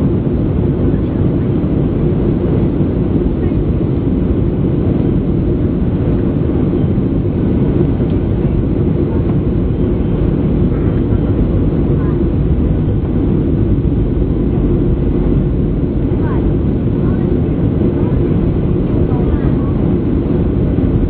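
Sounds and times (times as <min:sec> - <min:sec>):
airplane cabin rumble: 0:00.0 - 0:21.0.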